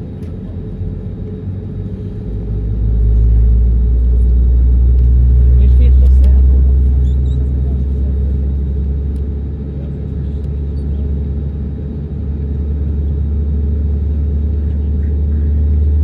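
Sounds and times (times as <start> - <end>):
airliner engines rumbling: 0.0 - 16.0.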